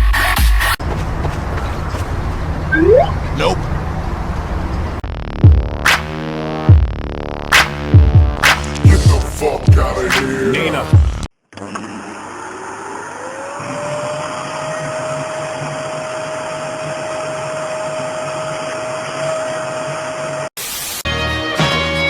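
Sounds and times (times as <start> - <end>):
music: 0.0 - 0.8, 5.0 - 11.3, 21.0 - 22.0.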